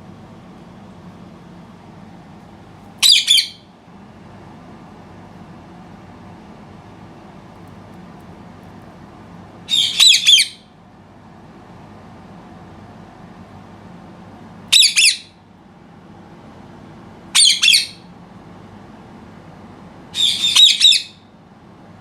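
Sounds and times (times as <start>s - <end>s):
parrot squawking: 3.0s - 3.6s, 9.7s - 10.6s, 14.7s - 15.3s, 17.4s - 18.0s, 20.2s - 21.2s.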